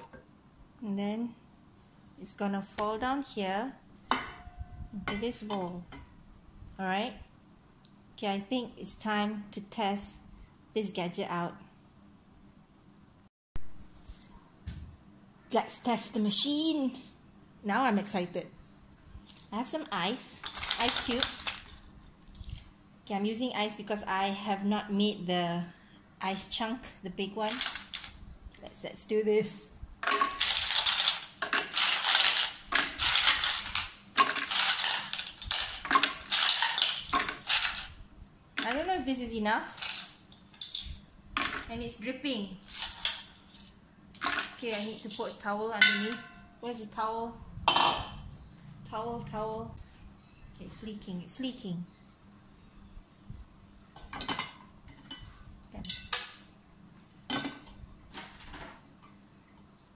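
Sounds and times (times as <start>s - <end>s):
ice cubes clattering into hopper: 20.4s - 21.7s, 27.4s - 28.1s, 30.0s - 37.9s, 39.8s - 40.1s.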